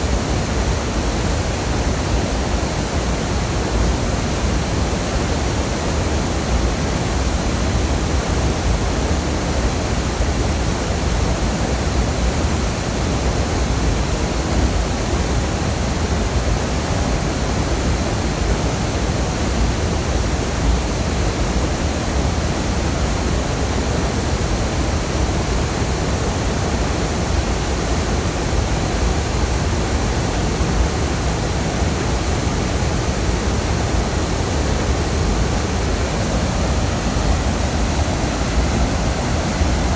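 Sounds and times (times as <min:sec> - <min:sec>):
waterfall rushing: 0:20.6 - 0:39.9.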